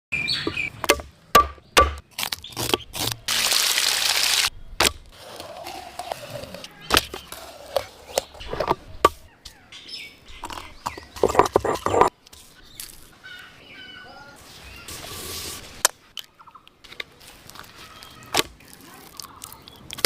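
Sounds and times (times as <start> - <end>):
sharp knocks and cracks: 0.5 - 3.2.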